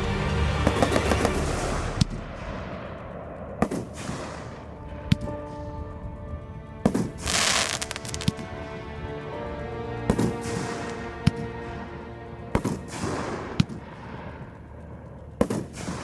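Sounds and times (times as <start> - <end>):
music: 0.0 - 16.0
firework shell bursts: 3.6 - 4.8, 7.2 - 8.4, 15.4 - 16.0
firework crackling burst: 7.2 - 8.4.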